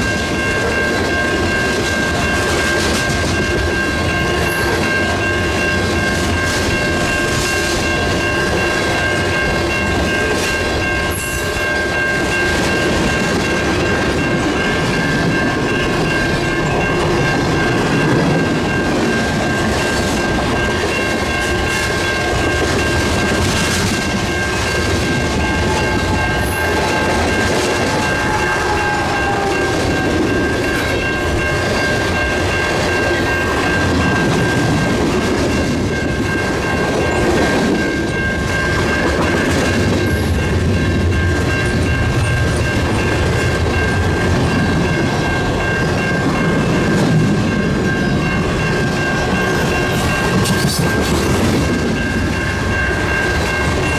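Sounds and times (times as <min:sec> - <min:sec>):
freight train rumble: 0:00.0 - 0:53.9
high-pitched ringing tone: 0:24.0 - 0:53.9.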